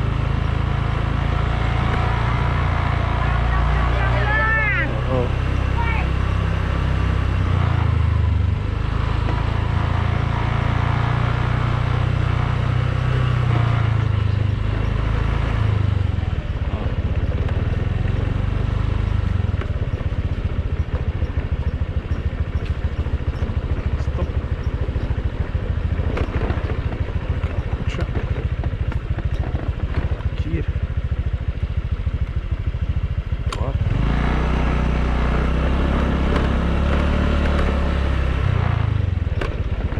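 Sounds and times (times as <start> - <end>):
motor scooter engine pulsing: 15.8 - 34.1.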